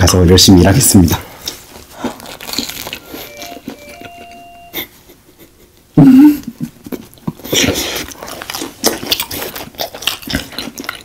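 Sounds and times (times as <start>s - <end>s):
crunchy food chewing: 1.4s - 3.3s, 7.0s - 11.0s.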